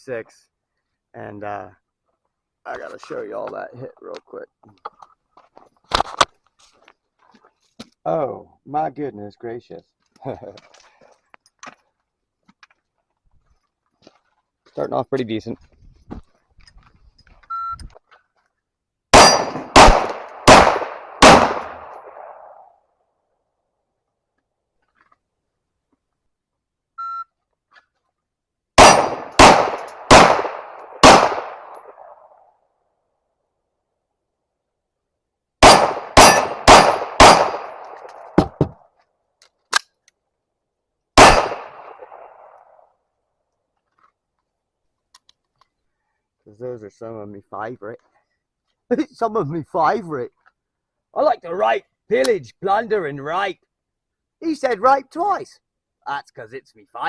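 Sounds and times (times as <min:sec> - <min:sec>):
pistol shots: 0:19.1 - 0:22.6, 0:28.8 - 0:32.2, 0:35.6 - 0:38.6, 0:41.2 - 0:42.6
electronic timer beep: 0:27.0 - 0:27.3.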